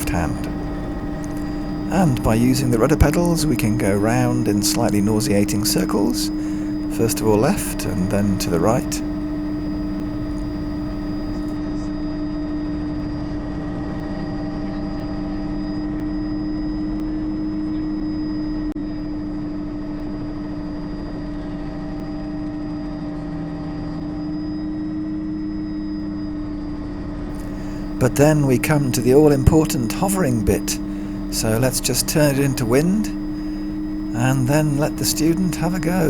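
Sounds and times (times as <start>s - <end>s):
thin high whine: 0.0s - 11.9s, 23.7s - 36.0s
helicopter engine and rotors drone: 0.0s - 36.0s.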